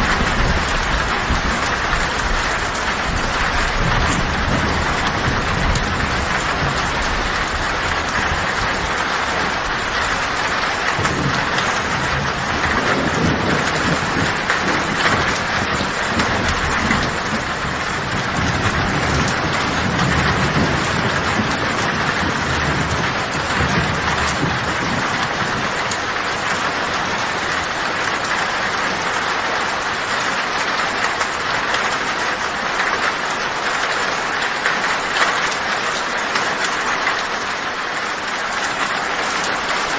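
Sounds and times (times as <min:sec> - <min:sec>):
low thunder rumbling: 0:00.0 - 0:30.1
heavy rain on a tin roof: 0:00.0 - 0:39.9.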